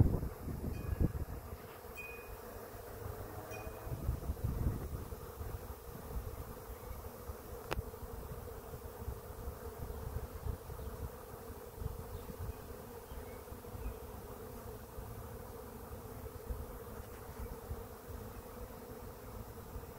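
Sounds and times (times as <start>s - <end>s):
bees buzzing: 0.0s - 19.9s.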